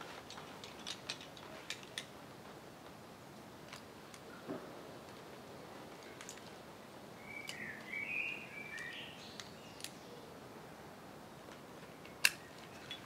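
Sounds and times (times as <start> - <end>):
sharp buckle click: 12.1 - 13.0.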